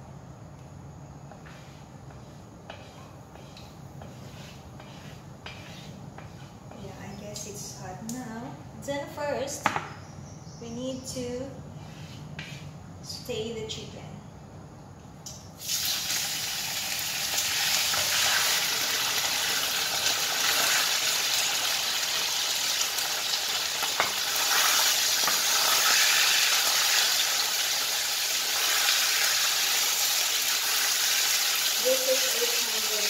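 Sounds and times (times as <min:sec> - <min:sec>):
wooden spatula stirring: 0:01.3 - 0:07.0
chicken sizzling in hot oil: 0:15.6 - 0:33.0.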